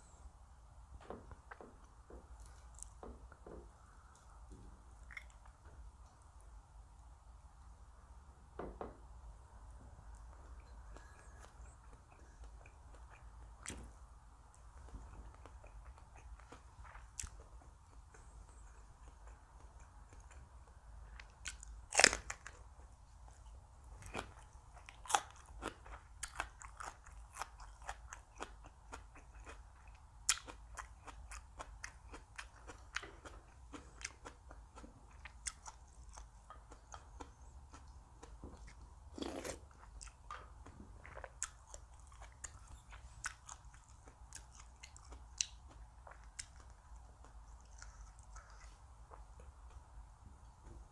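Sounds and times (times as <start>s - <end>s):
person chewing crunchy food: 1.3s - 5.9s, 10.2s - 49.9s
wet mouth clicks: 5.0s - 5.5s.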